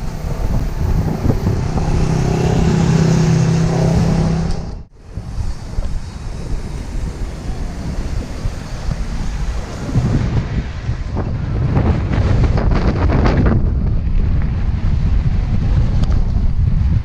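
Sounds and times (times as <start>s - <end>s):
steady low hum: 0.0s - 10.1s
bicycle tyre noise: 0.0s - 17.0s
wind rushing over microphone: 0.0s - 17.0s.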